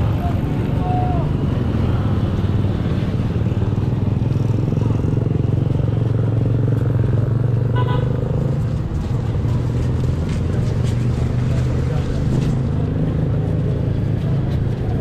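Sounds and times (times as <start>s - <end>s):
engines droning: 0.0s - 15.0s.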